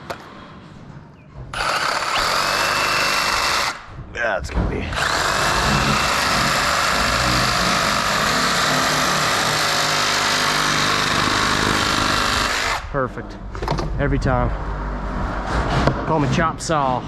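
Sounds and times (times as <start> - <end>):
power saw cutting plastic pipe: 1.5 - 3.9, 4.9 - 12.9.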